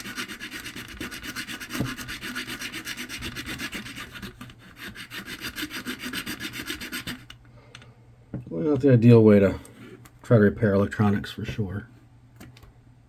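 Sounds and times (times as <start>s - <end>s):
hacksaw cutting plastic: 0.0s - 7.4s.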